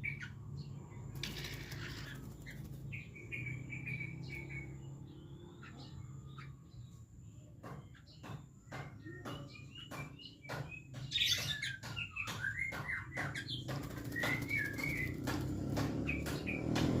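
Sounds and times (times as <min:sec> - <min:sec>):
bird chirping calls: 0:00.0 - 0:17.0
bird bathing and flapping: 0:01.1 - 0:04.2, 0:13.1 - 0:17.0.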